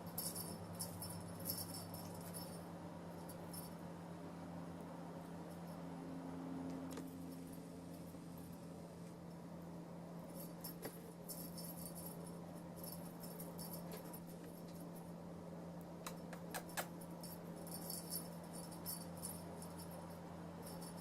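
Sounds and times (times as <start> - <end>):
jingle bell rattling: 0.0 - 3.8, 10.3 - 15.0, 16.6 - 21.0
steady low hum: 0.0 - 21.0.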